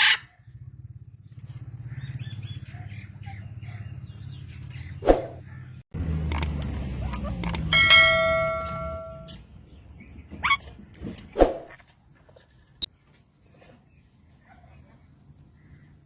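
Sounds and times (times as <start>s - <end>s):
parrot squawks: 0.0s - 0.4s
ringing bell-like parrot note: 7.7s - 9.4s.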